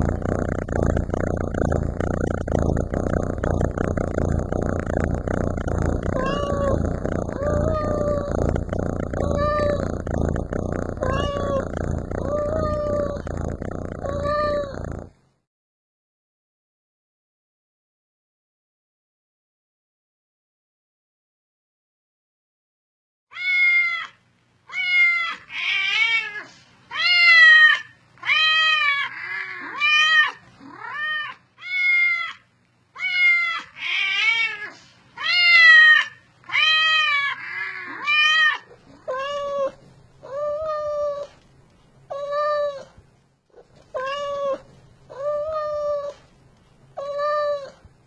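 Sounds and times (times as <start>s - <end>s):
cat meowing: 6.2s - 6.8s, 7.4s - 8.4s, 9.2s - 9.9s, 11.0s - 13.2s, 14.0s - 14.8s, 23.3s - 32.4s, 33.0s - 41.3s, 43.9s - 46.2s, 47.0s - 47.8s
lower-pitched meow: 14.0s - 14.8s, 44.0s - 46.2s, 47.0s - 47.8s.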